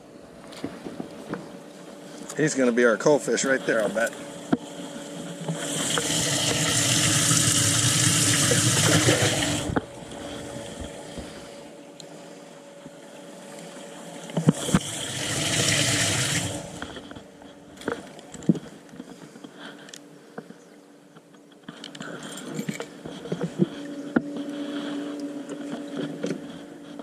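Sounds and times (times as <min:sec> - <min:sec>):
water rushing: 0:02.5 - 0:11.6, 0:13.2 - 0:17.1.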